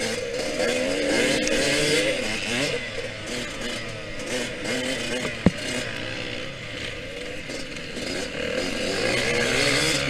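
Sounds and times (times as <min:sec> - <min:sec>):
motorcycle engine revving: 0:00.0 - 0:10.0
sharp thump: 0:05.2 - 0:05.6.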